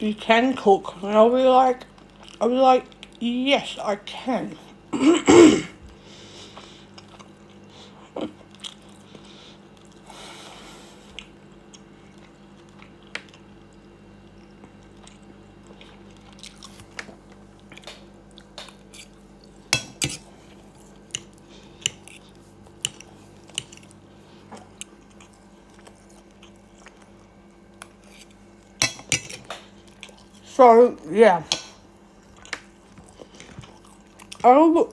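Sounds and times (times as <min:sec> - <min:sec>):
faint steady hum: 0:00.0 - 0:34.9
person chewing: 0:06.4 - 0:10.0, 0:11.0 - 0:30.4, 0:32.1 - 0:34.4
cutlery and dishes clicking: 0:19.8 - 0:20.2, 0:28.8 - 0:29.6.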